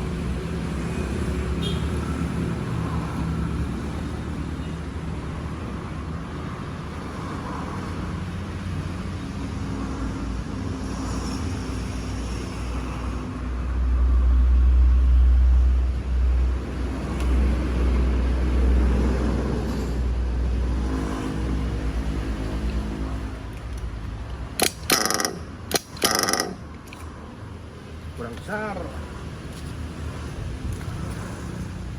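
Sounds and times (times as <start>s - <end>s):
nitro two-stroke engine running: 24.5s - 26.7s.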